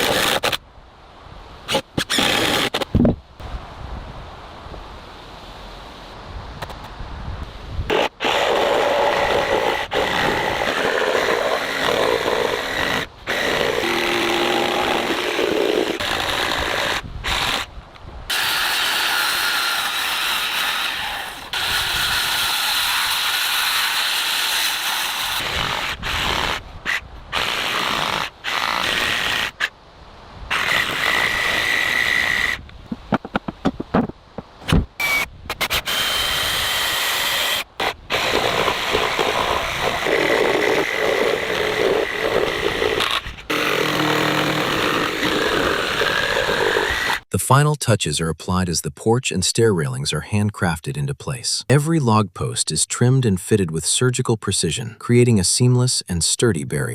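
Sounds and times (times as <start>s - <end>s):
power tools cutting timber: 0.0s - 0.6s, 1.7s - 2.9s, 7.9s - 17.7s, 18.3s - 29.7s, 30.5s - 32.6s, 35.0s - 47.3s
steady tool whine: 7.9s - 17.7s, 35.0s - 47.3s.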